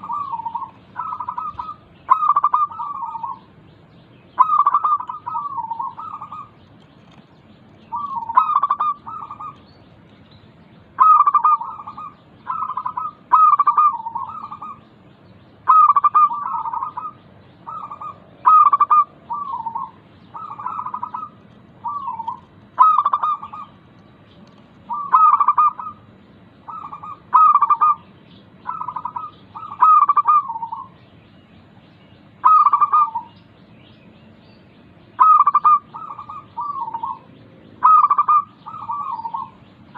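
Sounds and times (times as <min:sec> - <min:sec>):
dove cooing: 0:00.0 - 0:03.5, 0:04.4 - 0:07.2, 0:07.9 - 0:09.7, 0:11.0 - 0:14.9, 0:15.6 - 0:23.8, 0:24.9 - 0:28.0, 0:28.6 - 0:31.0, 0:32.4 - 0:33.4, 0:35.2 - 0:39.7
steady low hum: 0:00.0 - 0:39.9.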